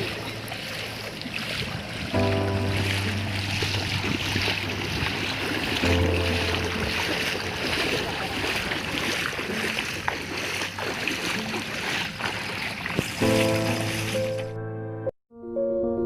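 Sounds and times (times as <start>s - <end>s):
floodwater rushing: 0.0s - 14.6s
background music: 2.1s - 4.7s, 5.6s - 7.8s, 13.2s - 16.0s.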